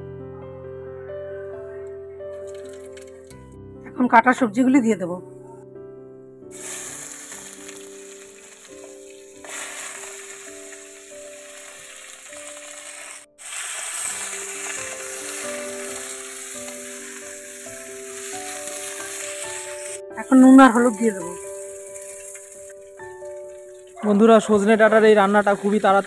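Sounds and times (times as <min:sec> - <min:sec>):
soft background music: 0:00.0 - 0:26.0
vegetables sizzling in hot oil: 0:06.5 - 0:24.0, 0:25.3 - 0:26.0.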